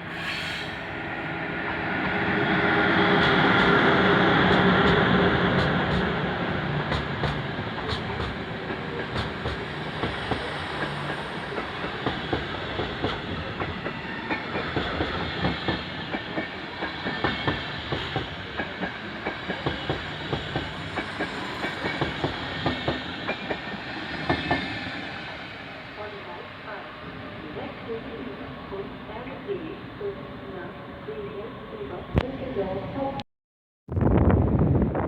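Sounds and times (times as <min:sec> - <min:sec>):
train rumble: 0:00.0 - 0:29.9
train wheels clicking over rail joints: 0:06.9 - 0:24.8.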